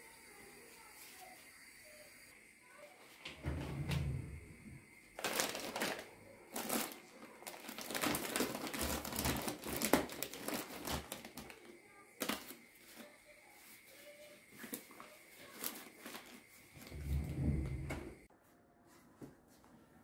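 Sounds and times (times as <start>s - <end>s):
rustling and crinkling: 5.1s - 18.3s.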